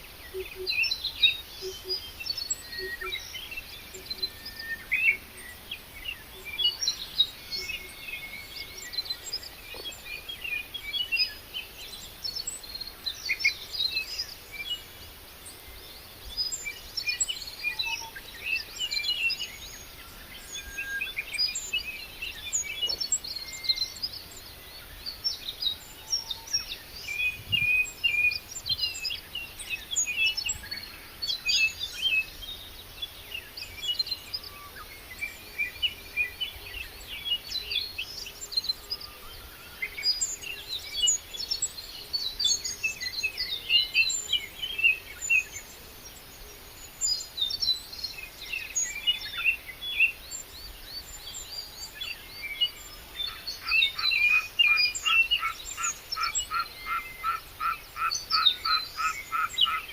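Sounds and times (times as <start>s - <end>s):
birds chirping and singing: 25.1s - 29.5s
fast rattling bird call: 27.1s - 29.0s.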